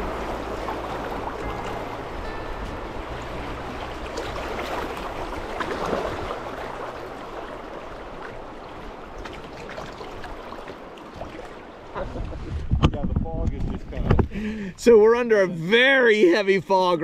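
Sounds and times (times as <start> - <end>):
river water rippling and splashing: 0.0 - 12.7.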